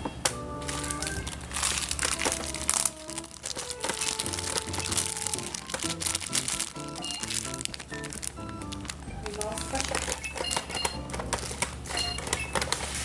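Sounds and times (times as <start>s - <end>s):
bouncy background music: 0.0s - 12.6s
packaging crinkling and tearing: 0.6s - 13.0s.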